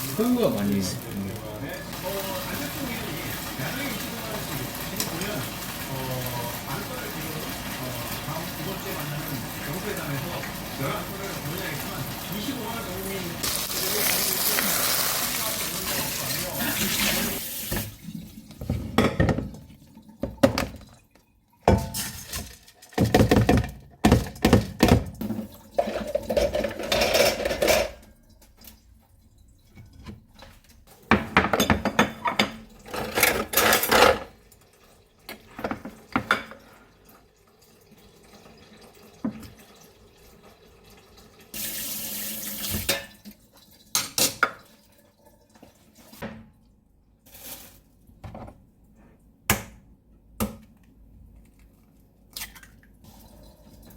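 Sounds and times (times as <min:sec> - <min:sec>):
water splashing into sink: 0:00.0 - 0:46.7, 0:52.3 - 0:53.9
dishes and utensils clattering: 0:18.5 - 0:21.0, 0:21.6 - 0:28.2, 0:29.6 - 0:34.4, 0:35.2 - 0:37.0, 0:42.6 - 0:44.8.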